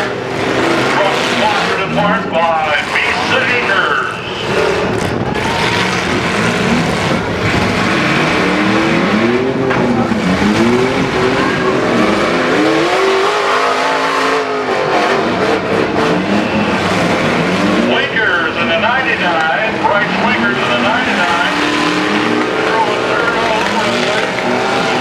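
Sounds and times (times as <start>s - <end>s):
constant engine rumble: 0.0s - 25.0s
truck engines revving: 0.0s - 25.0s.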